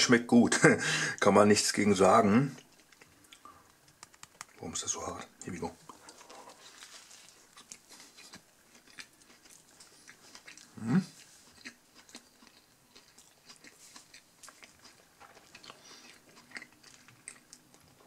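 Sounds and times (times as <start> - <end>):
person chewing: 2.5 - 4.6, 5.8 - 18.0.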